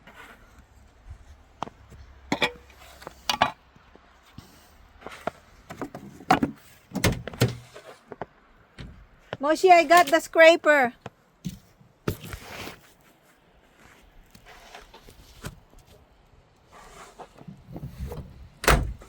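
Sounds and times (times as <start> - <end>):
snow tools knocking and scraping: 11.1 - 13.0.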